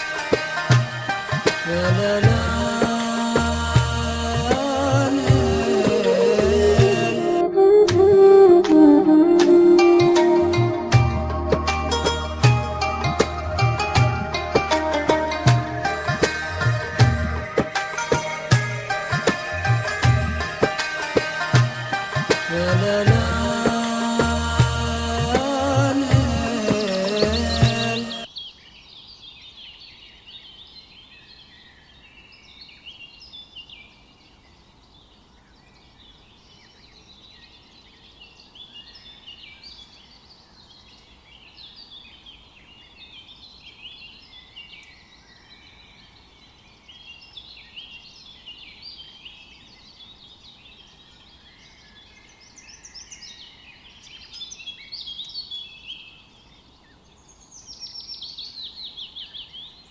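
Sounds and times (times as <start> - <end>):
small birds chirping: 25.3 - 59.9.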